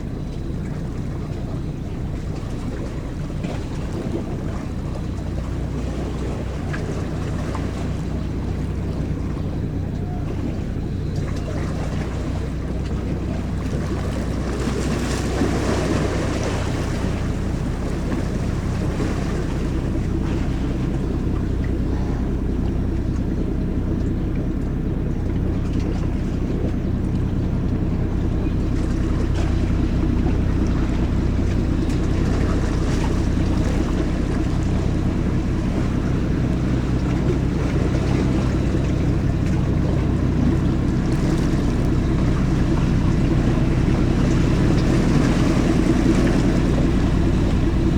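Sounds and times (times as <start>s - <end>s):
ferry engines droning: 0.0s - 47.9s
wind and water hiss: 0.0s - 47.9s.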